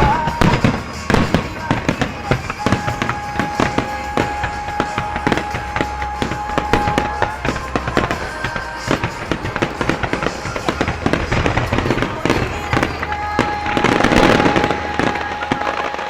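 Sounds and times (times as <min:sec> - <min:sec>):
fireworks bursting and crackling: 0:00.0 - 0:16.0
loud music: 0:00.0 - 0:16.0.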